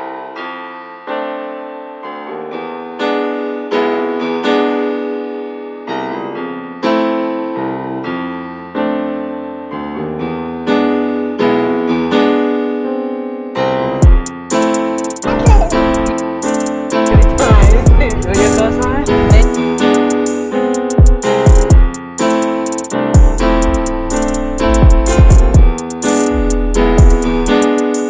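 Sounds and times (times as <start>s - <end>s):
piano chords: 0.0s - 28.0s
piano bass line: 13.6s - 28.0s.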